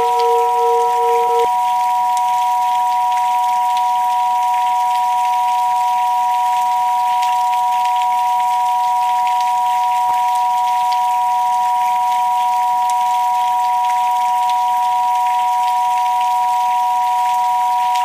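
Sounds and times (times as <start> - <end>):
two steady sine tones: 0.0 - 1.6
rain pattering: 0.0 - 18.0.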